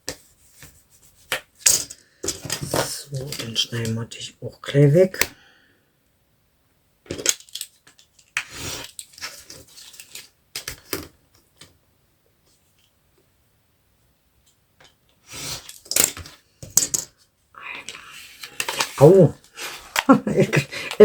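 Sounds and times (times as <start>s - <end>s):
paper rustling and clicking: 7.1s - 11.7s, 17.9s - 21.0s.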